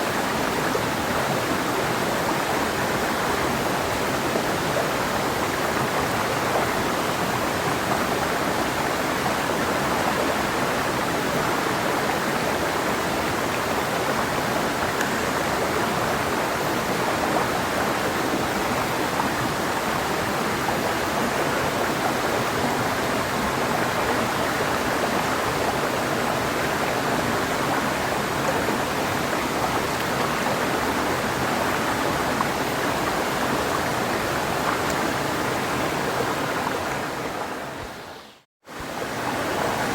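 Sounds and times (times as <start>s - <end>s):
river flowing over rocks: 0.0s - 38.1s, 38.7s - 39.9s.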